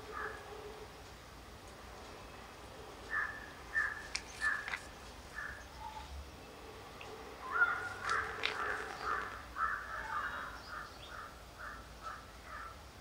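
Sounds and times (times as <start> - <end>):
bird repeated short calls: 3.1 - 6.0, 7.4 - 10.5.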